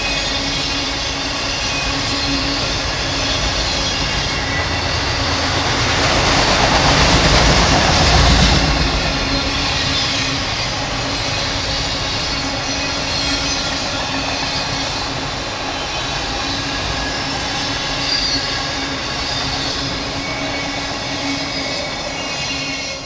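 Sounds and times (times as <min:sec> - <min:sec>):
steel wheels rumbling on rail: 0:00.0 - 0:23.0
faint high wheel squeal: 0:09.2 - 0:23.0.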